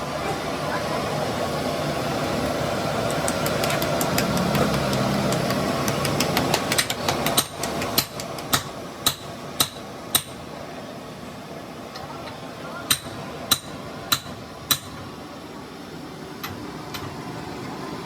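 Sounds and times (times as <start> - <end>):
engine running: 0.0 - 8.5.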